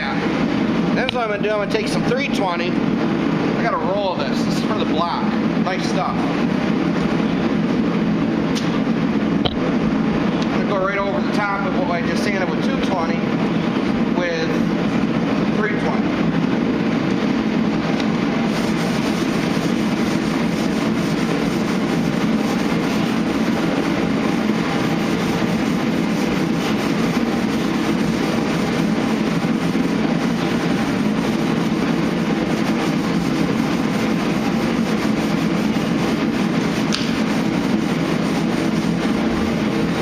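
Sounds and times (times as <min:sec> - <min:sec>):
sander running: 0:17.0 - 0:40.0.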